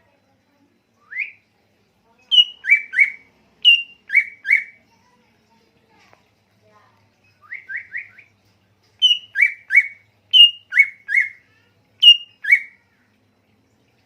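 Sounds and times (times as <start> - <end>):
songbird whistling: 1.0 - 1.4, 2.3 - 4.8, 7.4 - 8.3, 9.0 - 11.4, 12.0 - 12.8.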